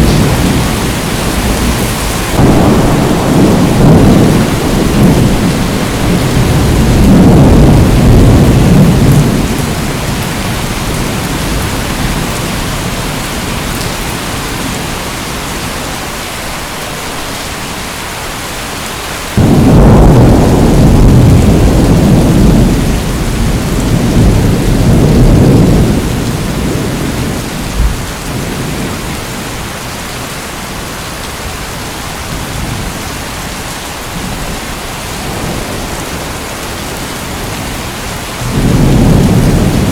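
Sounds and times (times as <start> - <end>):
thunder clap: 0.0 - 12.6, 19.4 - 29.1, 38.4 - 39.9
thunder rumbling: 0.0 - 15.0, 19.4 - 29.7, 35.2 - 39.9
heavy rain: 0.0 - 39.9.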